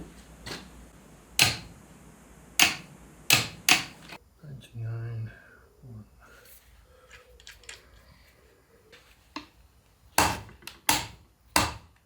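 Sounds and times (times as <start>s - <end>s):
sharp metallic knocks: 1.4s - 1.7s, 2.6s - 4.0s.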